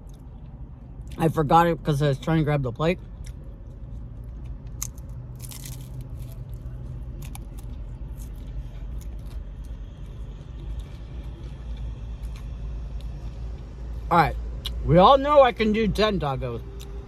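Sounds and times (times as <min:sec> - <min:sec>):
steady low hum: 0:00.0 - 0:17.0
taco shell crunching: 0:03.0 - 0:13.7.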